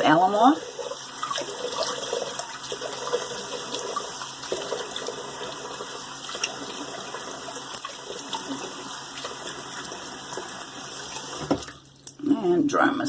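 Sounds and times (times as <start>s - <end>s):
tap water running into sink: 0.0s - 11.9s.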